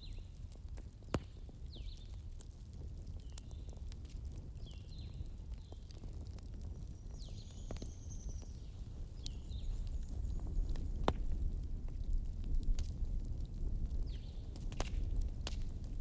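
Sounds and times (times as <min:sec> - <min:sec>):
wood bonfire crackling: 0:00.0 - 0:16.0
small birds chirping: 0:01.7 - 0:02.2, 0:06.8 - 0:10.9.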